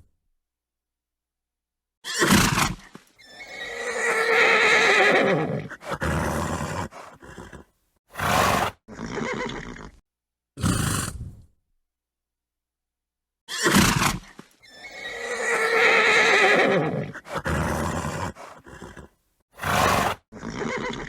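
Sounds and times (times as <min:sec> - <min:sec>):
horse whinnying: 0:02.0 - 0:10.0, 0:13.5 - 0:21.0
horse snorting: 0:02.2 - 0:10.0, 0:10.6 - 0:11.4, 0:13.6 - 0:21.0.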